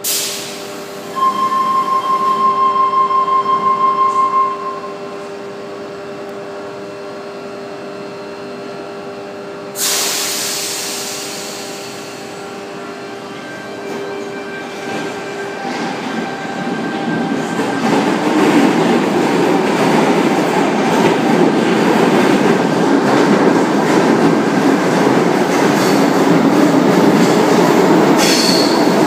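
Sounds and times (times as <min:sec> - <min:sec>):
loud hiss of air: 0:00.0 - 0:00.7, 0:09.8 - 0:12.4
door warning beeps: 0:01.2 - 0:05.0.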